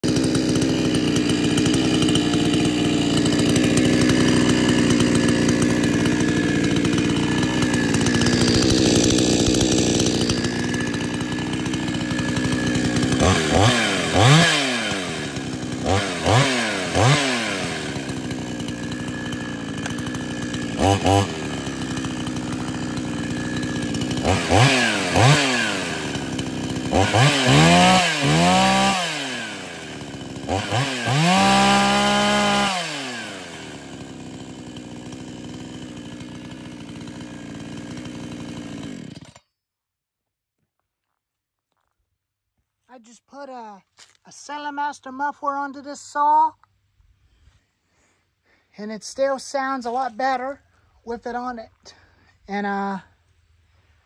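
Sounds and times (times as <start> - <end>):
chainsaw revving: 0.0 - 39.4, 49.1 - 52.1.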